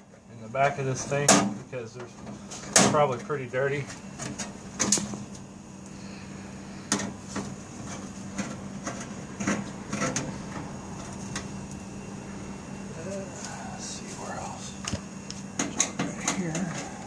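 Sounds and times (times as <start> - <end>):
refrigerator hum: 0.0 - 17.0
knocks and clatters of handling: 6.9 - 11.5.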